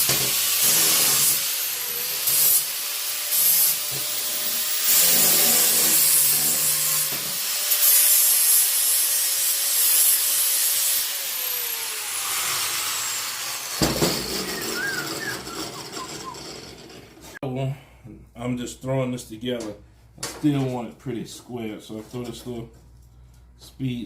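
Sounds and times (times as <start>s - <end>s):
angle grinder grinding steel: 0.0s - 17.4s
sharp knock: 13.8s - 14.8s.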